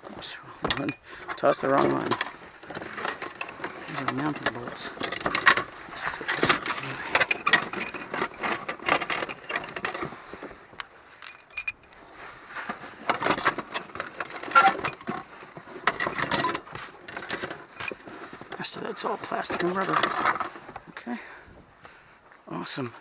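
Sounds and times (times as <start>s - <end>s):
metal parts clinking and rattling: 0.6s - 12.1s, 13.0s - 18.6s, 19.5s - 20.6s
metal pieces ringing: 10.8s - 12.0s.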